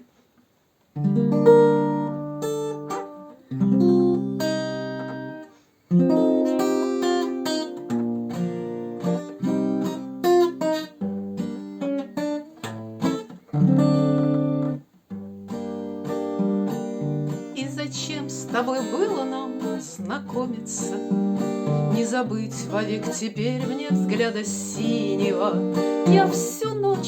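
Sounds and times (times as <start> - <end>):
acoustic guitar strumming and picking: 1.0 - 27.0.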